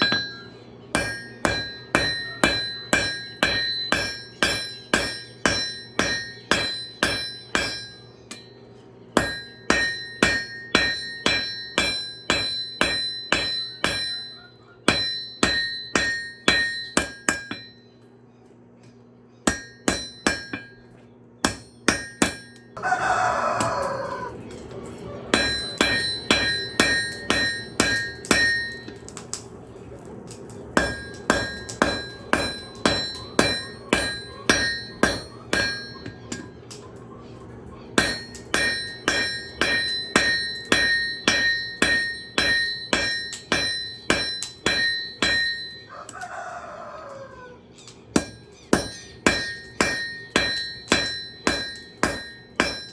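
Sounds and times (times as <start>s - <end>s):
hammer ringing on anvil: 0.0s - 18.0s, 19.4s - 23.8s, 25.3s - 29.1s, 30.8s - 36.8s, 38.0s - 46.3s, 48.1s - 52.9s
rooster crowing: 13.7s - 14.8s, 22.8s - 24.5s, 45.8s - 47.8s.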